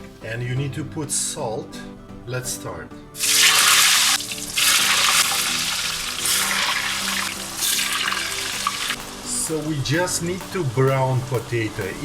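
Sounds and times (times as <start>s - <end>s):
potatoes sizzling in hot oil: 3.2s - 12.0s.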